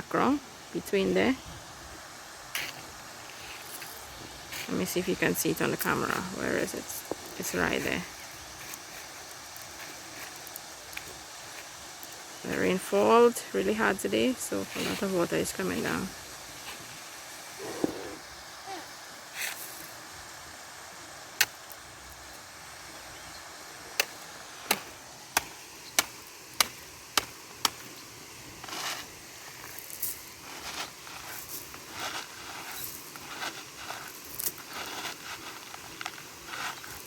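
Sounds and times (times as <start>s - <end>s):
running rainwater hiss: 0.0s - 37.0s
stones scraping and crunching: 28.6s - 37.0s.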